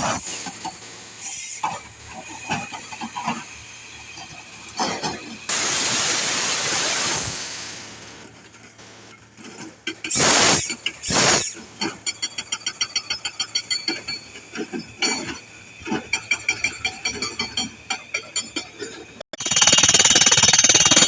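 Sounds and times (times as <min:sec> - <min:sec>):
compressed air hiss: 0:05.5 - 0:08.3, 0:10.0 - 0:11.6.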